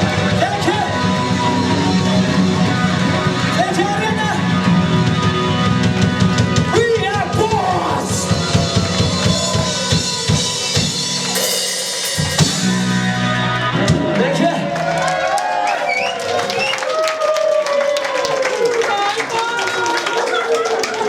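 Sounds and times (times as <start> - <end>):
live rock band playing: 0.0 - 15.2.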